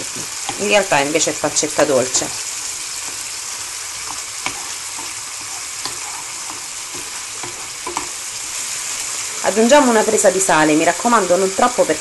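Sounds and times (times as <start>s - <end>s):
food sizzling in a frying pan: 0.0s - 12.0s
wooden spoon tapping: 5.8s - 8.2s.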